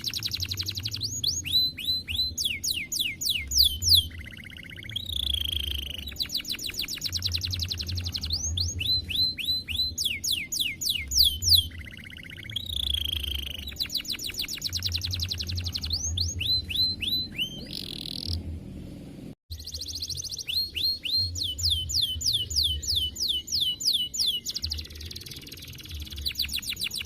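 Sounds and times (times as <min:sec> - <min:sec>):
canary singing: 0:00.0 - 0:18.6, 0:19.5 - 0:27.0
steady low hum: 0:15.2 - 0:19.4.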